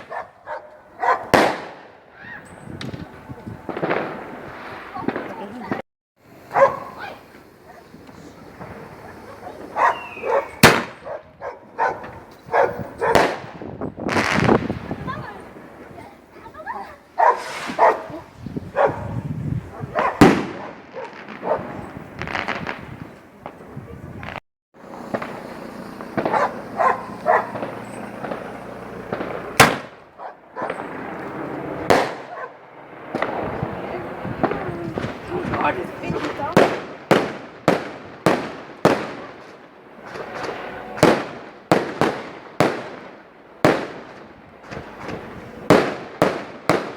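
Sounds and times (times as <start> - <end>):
dog barking: 0.0 - 1.4, 6.5 - 8.0, 9.0 - 13.4, 16.7 - 21.8, 26.2 - 27.7, 30.2 - 30.8, 32.2 - 32.6
firework bangs: 0.0 - 46.9.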